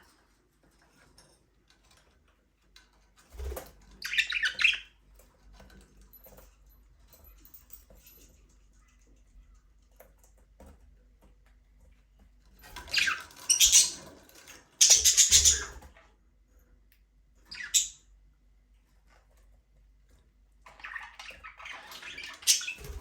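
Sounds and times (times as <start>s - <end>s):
budgerigars squawking: 14.8s - 15.8s.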